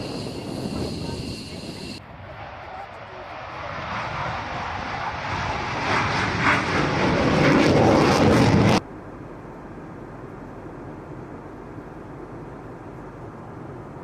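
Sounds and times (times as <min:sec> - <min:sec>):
fighter jet engine running loud: 0:00.0 - 0:08.9.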